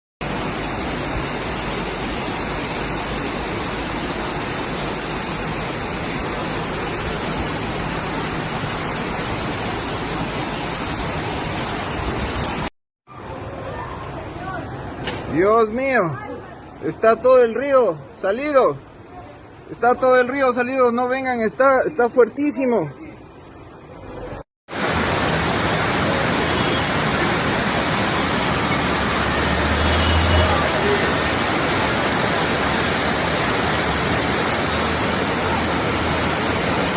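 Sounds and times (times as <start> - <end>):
loud rush of water: 0.2 - 36.9.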